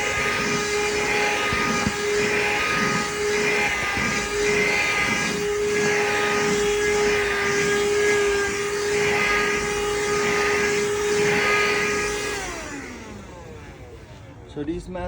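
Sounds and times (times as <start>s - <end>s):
handheld vacuum cleaner running: 0.0s - 14.5s
vacuum motor winding down: 0.0s - 14.5s.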